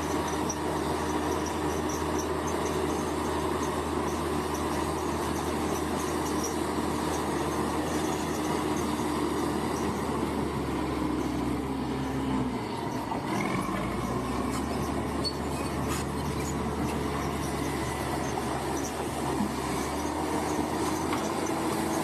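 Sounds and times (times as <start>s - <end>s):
bulldozer diesel engine running: 0.0s - 22.0s
steel tracks squealing and clattering: 0.0s - 22.0s.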